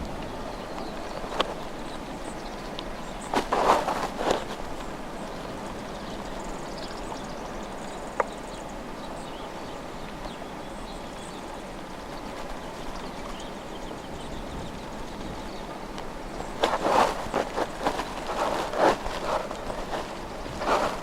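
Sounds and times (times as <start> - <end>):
snowstorm hiss: 0.0 - 21.0
bird chirps: 0.2 - 4.6.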